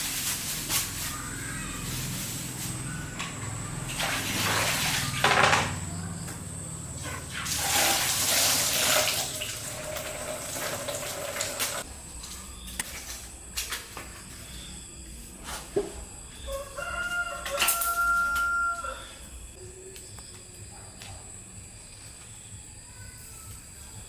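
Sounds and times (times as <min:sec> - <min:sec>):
water pouring and splashing: 0:03.4 - 0:05.7, 0:07.0 - 0:11.9.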